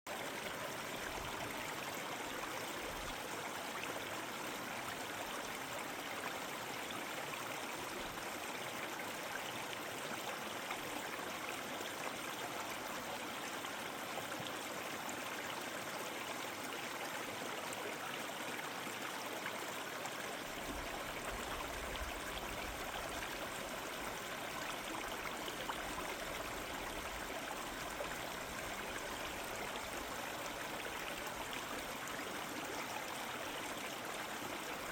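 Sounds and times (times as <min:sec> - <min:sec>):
stream flowing over rocks: 0:00.1 - 0:34.9.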